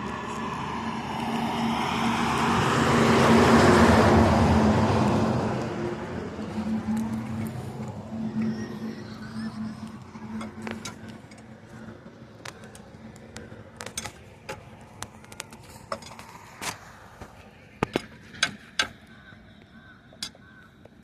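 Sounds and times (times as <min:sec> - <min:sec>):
metallic clicks and knocks: 0:17.8 - 0:19.0.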